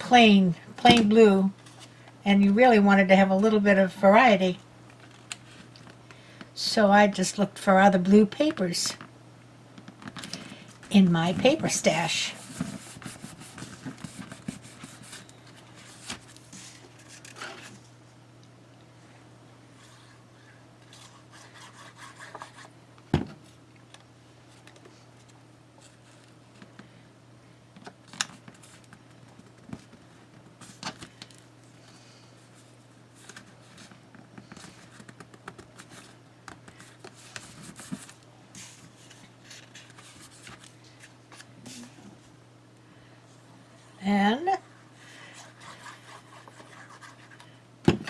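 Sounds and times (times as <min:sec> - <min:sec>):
steady low hum: 0:00.0 - 0:48.0
paper rustling and rubbing: 0:11.4 - 0:17.8, 0:32.6 - 0:41.9.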